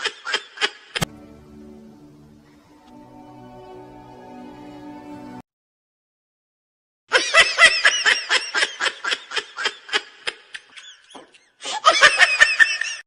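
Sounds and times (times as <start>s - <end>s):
high-pitched laughter: 7.1s - 13.0s.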